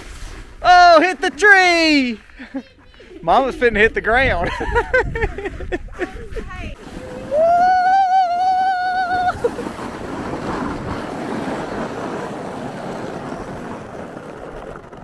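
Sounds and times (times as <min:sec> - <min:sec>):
steady rushing noise: 0:00.0 - 0:15.0
person screaming: 0:07.3 - 0:09.4.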